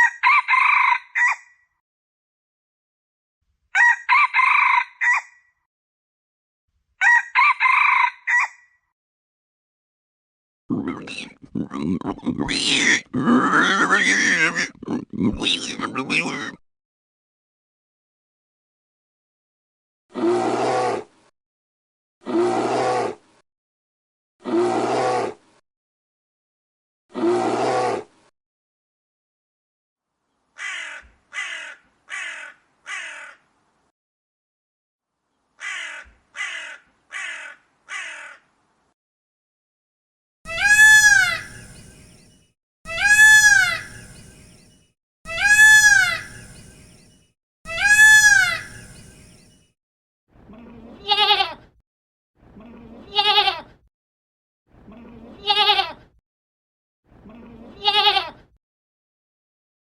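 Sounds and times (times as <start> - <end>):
short harsh animal calls: 40.5 - 41.8, 42.9 - 44.2, 45.3 - 46.6, 47.7 - 49.4
short wavering animal calls: 40.5 - 42.2, 42.9 - 44.6, 45.3 - 47.0, 47.7 - 49.5
long rising and falling calls: 40.5 - 49.6.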